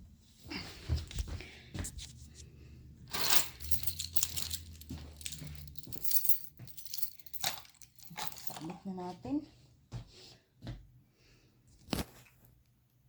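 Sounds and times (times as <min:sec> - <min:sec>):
handling rustling: 0:03.1 - 0:08.8
small clicks and clinks: 0:03.1 - 0:08.8.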